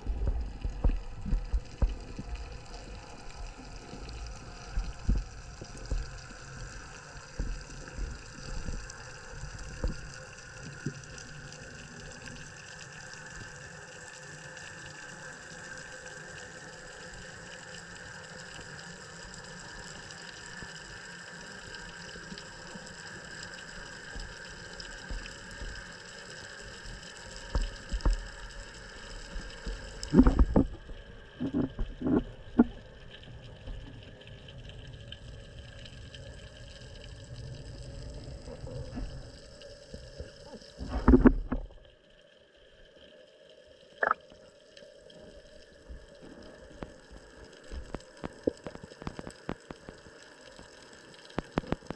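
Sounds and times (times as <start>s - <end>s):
water gurgling and rushing: 27.7s - 33.0s, 44.0s - 44.2s.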